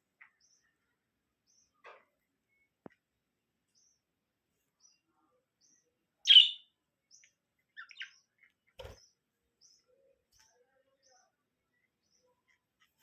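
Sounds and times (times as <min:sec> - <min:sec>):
lovebird chirping: 0:06.2 - 0:09.8.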